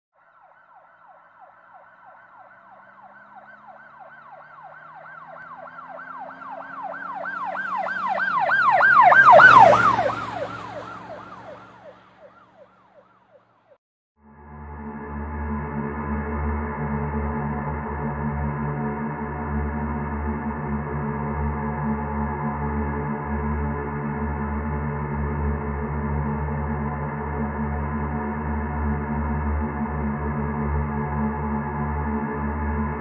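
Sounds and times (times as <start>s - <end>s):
emergency siren yelping: 0.2s - 13.8s
vehicle engine passing: 0.4s - 13.7s.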